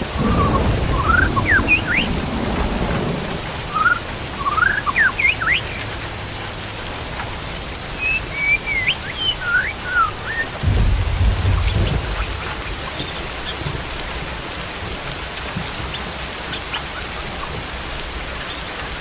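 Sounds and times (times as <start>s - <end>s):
thunder rumble: 0.0s - 5.5s, 8.3s - 15.0s
steady rain: 0.0s - 19.0s
songbird whistling: 0.2s - 2.2s, 3.7s - 5.9s, 8.0s - 10.6s.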